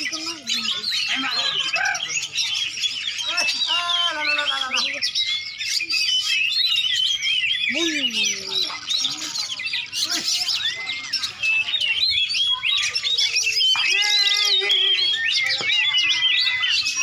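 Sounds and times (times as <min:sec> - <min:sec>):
long held bird call: 0:00.0 - 0:17.0
songbirds singing: 0:00.0 - 0:17.0.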